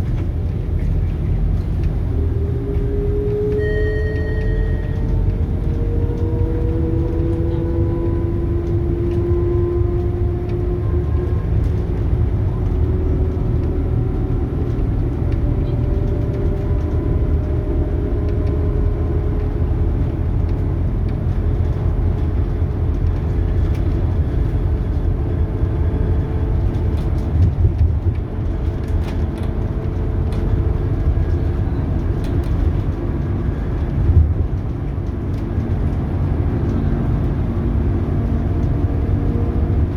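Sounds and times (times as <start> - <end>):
bus diesel engine rumble: 0.0 - 39.9
rising gearbox whine: 2.1 - 6.0.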